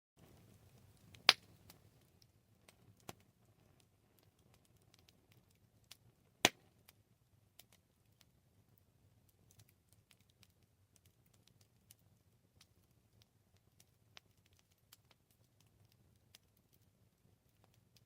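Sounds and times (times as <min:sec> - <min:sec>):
campfire crackling: 0:00.2 - 0:18.0
loud snap of burning wood: 0:01.0 - 0:07.0.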